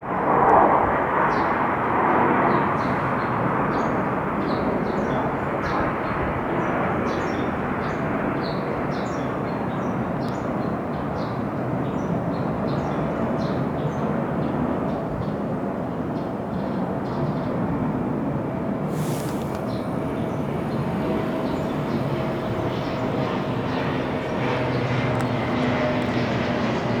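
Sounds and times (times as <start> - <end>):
faint high chirps: 18.9 - 25.5
jet engines rushing: 18.9 - 27.0.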